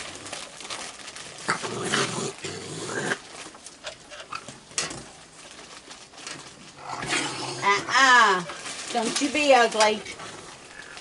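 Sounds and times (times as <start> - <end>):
raccoons growling and squabbling: 1.4 - 5.1, 6.6 - 8.7, 10.0 - 11.0.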